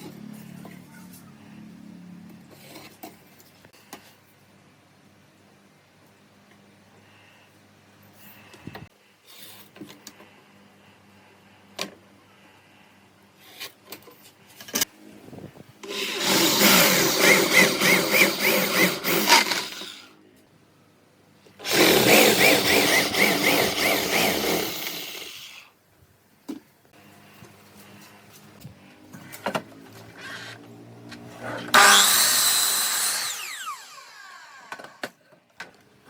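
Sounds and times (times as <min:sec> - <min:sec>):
power tool on wood: 0:15.8 - 0:20.2, 0:21.6 - 0:25.7, 0:29.5 - 0:35.2.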